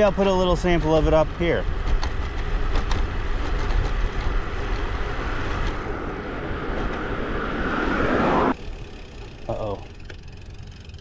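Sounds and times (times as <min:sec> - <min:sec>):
tyre and road noise: 0:00.0 - 0:11.0
wind rumbling on microphone: 0:01.4 - 0:09.4.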